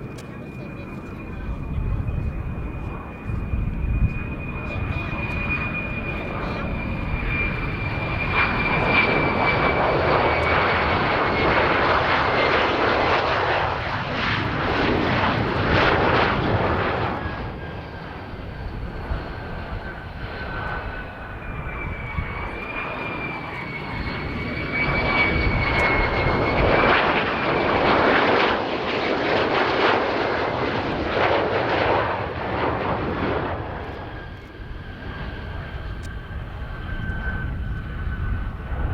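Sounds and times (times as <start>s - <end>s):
high turbine whine: 0.0s - 38.9s
jet engine roaring: 0.0s - 38.9s.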